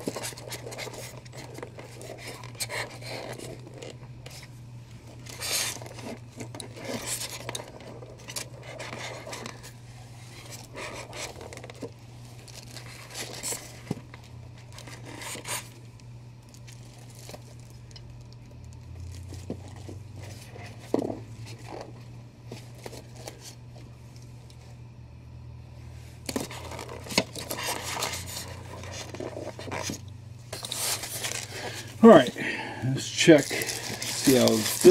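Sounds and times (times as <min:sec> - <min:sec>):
packaging scraping and tearing: 0:00.0 - 0:04.5, 0:05.1 - 0:15.8, 0:26.3 - 0:32.3, 0:33.2 - 0:34.9
steady low hum: 0:00.0 - 0:34.9.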